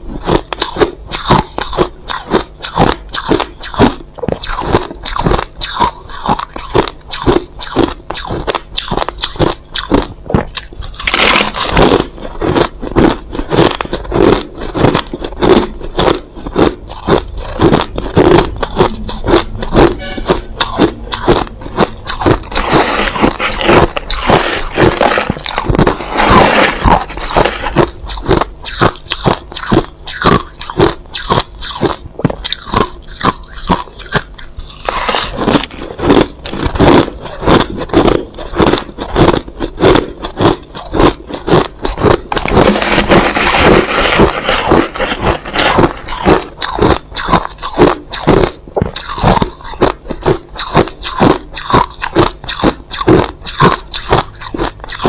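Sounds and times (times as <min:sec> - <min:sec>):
chewing crushed ice: 0:00.0 - 0:55.0.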